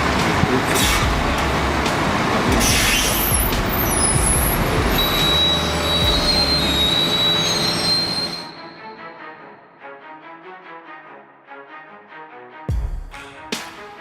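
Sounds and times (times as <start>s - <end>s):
heavy machinery running: 0.0s - 9.0s
metallic squeals: 2.5s - 9.2s.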